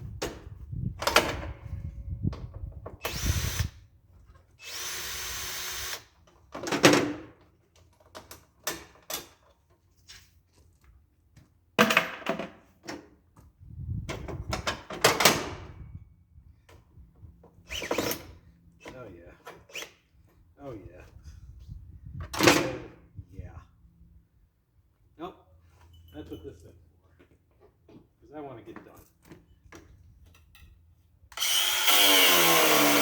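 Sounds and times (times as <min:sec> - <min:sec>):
power drill-driver spinning: 0:03.1 - 0:03.8, 0:04.6 - 0:06.0, 0:31.4 - 0:33.0
hand tools and metal clattering: 0:25.6 - 0:33.0.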